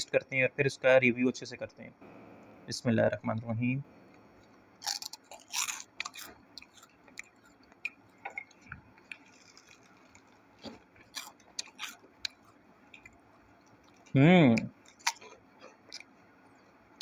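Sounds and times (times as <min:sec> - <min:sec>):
person crunching snack stick: 0:04.8 - 0:13.1, 0:14.8 - 0:16.1.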